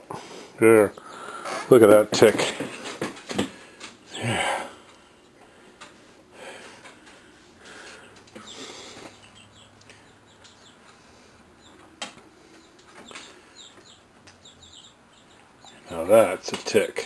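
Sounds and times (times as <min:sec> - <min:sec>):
faint bird chirps: 0:08.0 - 0:10.8, 0:12.5 - 0:16.0.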